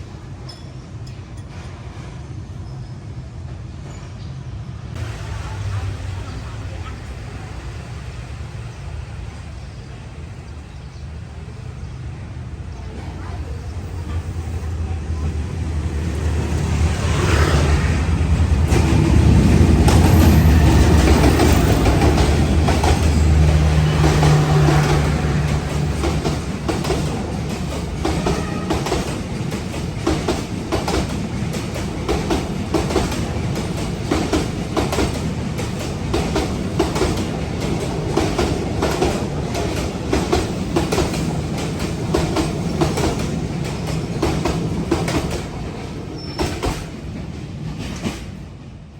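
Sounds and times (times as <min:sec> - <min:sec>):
train wheels clacking on rail joints: 0:18.3 - 0:48.6.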